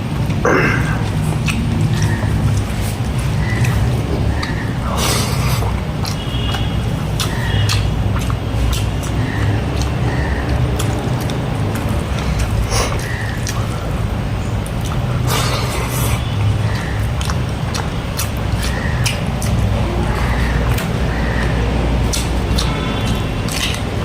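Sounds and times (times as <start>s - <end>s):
chewing and crunching: 0.0s - 24.0s.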